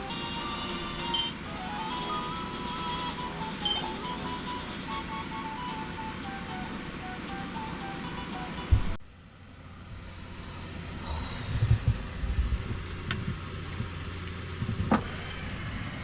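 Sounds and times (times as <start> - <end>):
background music: 0.0 - 9.0
steady low rumble: 8.6 - 16.0
knocks and thumps: 14.6 - 15.1.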